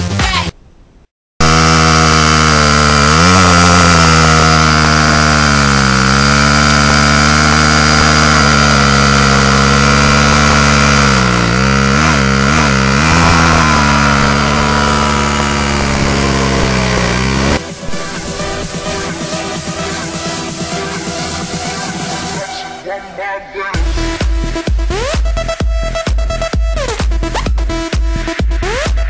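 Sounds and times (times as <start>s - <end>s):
motorcycle throttle blips: 1.4s - 20.3s
small motorcycle engine idling: 1.4s - 22.4s.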